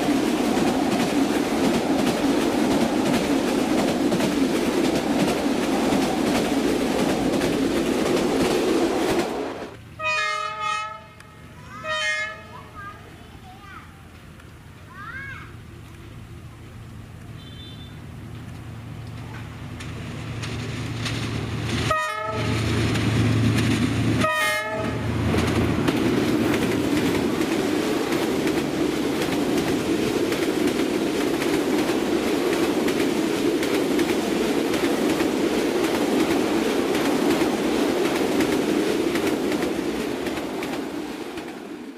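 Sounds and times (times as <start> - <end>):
locomotive horn blasts: 10.0 - 12.5, 17.3 - 18.0, 21.9 - 22.6, 24.2 - 25.0.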